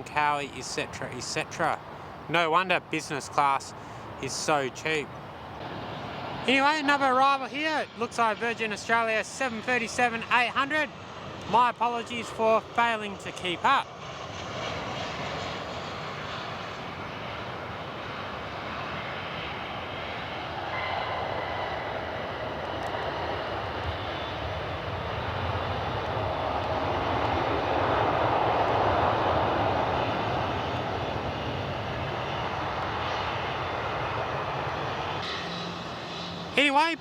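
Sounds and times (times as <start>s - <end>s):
jet airliner engine rush: 0.0s - 37.0s.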